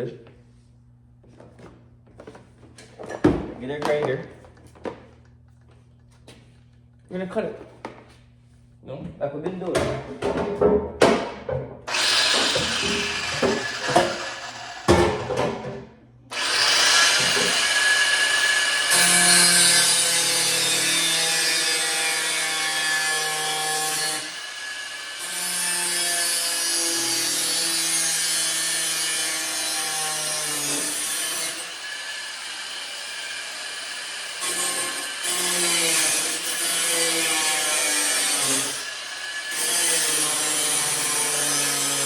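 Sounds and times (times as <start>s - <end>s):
angle grinder cutting metal: 11.9s - 15.3s, 16.3s - 42.0s.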